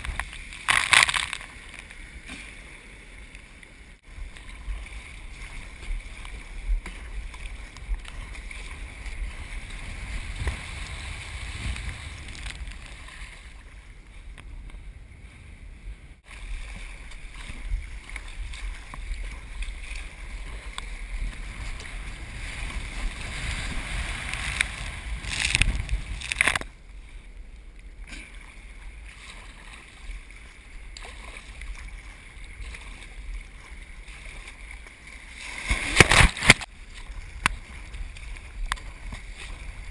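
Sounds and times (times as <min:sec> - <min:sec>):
wind noise on microphone: 0:00.0 - 0:01.8, 0:04.0 - 0:34.3
ocean surf: 0:19.8 - 0:27.2.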